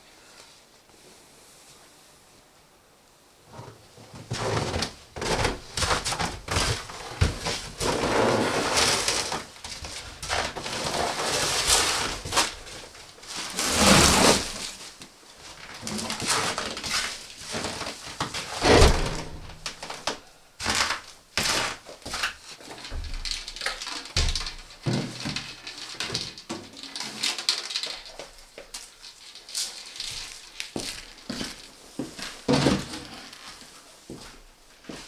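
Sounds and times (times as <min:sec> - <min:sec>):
knocks and thuds: 0:18.6 - 0:20.1.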